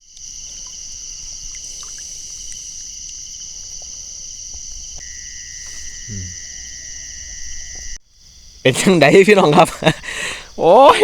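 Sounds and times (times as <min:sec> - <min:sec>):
crickets chirring: 0:00.0 - 0:11.0
faint ticks: 0:00.1 - 0:06.0
lower-pitched chirring: 0:05.0 - 0:08.0.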